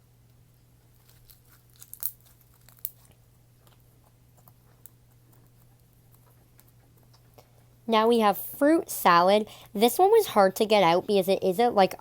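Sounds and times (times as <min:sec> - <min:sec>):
slime squishing with crackles: 0:00.8 - 0:07.4.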